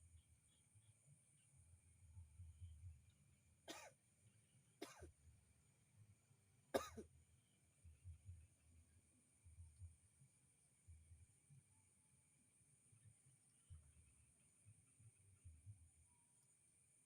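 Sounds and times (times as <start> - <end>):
short coughs: 3.7 - 4.0, 4.8 - 5.1, 6.8 - 7.1.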